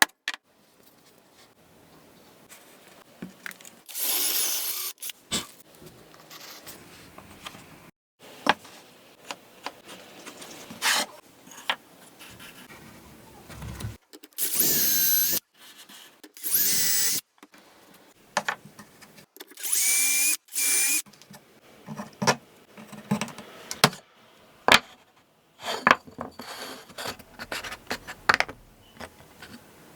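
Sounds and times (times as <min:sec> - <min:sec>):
power drill spinning: 0:03.9 - 0:05.1, 0:14.4 - 0:15.4, 0:16.4 - 0:17.2, 0:19.6 - 0:21.0.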